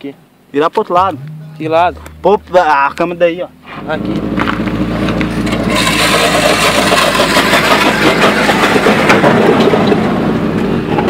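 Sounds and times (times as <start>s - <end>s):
vehicle engine running: 1.0s - 8.9s.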